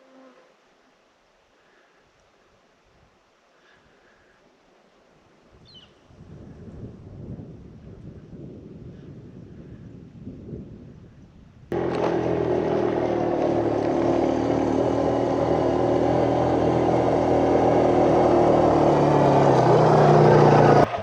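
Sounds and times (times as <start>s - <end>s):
faint wind noise: 1.6s - 11.9s
off-road vehicle engine running: 11.7s - 21.0s.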